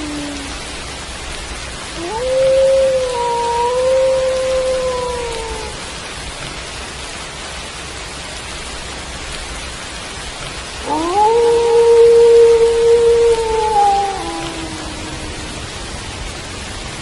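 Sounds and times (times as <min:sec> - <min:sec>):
wolf howling: 0:00.0 - 0:00.7, 0:02.0 - 0:05.8, 0:10.8 - 0:15.8
steady rain: 0:00.0 - 0:17.0.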